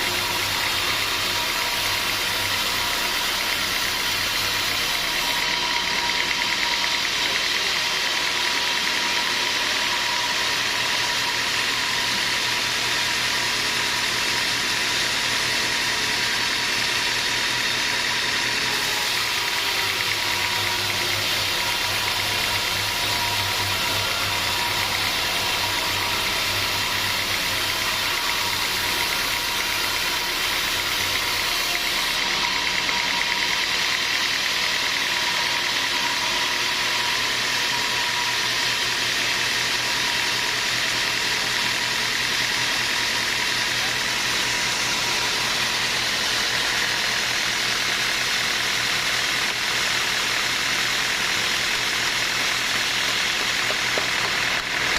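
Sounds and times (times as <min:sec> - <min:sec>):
machine whine: 0:00.0 - 0:54.9
sawmill machinery running: 0:00.0 - 0:54.9.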